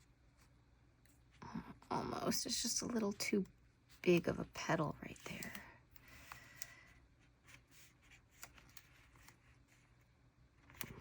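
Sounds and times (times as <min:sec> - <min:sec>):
paper rustling: 0:07.2 - 0:11.0.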